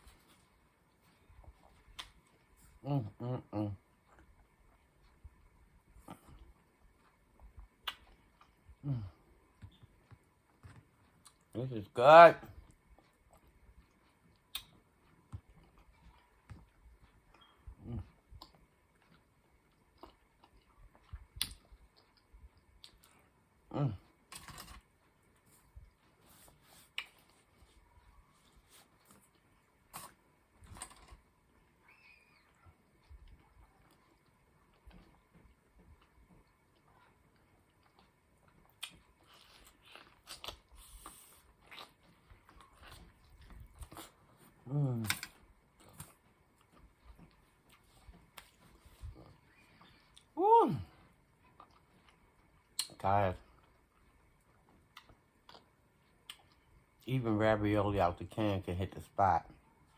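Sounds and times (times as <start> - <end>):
soft chewing: 0.0 - 57.3, 58.2 - 59.9
mouth clicks and lip smacks: 1.4 - 2.5, 3.8 - 8.8, 12.7 - 23.3, 26.8 - 27.6, 37.4 - 50.4, 51.6 - 53.0, 54.7 - 56.9
wet mouth clicks and smacks: 7.6 - 8.6, 13.3 - 14.8, 20.0 - 23.1, 52.8 - 53.0.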